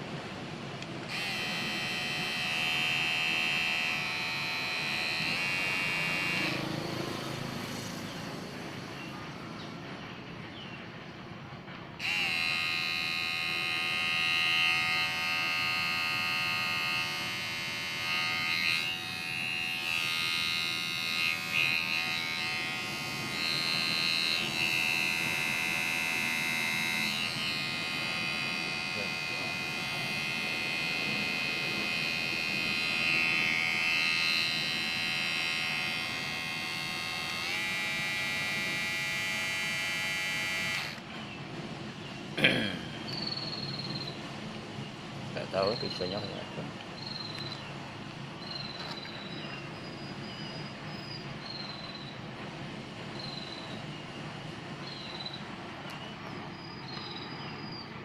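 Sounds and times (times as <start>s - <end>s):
electric shaver buzzing: 0.8s - 9.2s, 12.0s - 41.1s.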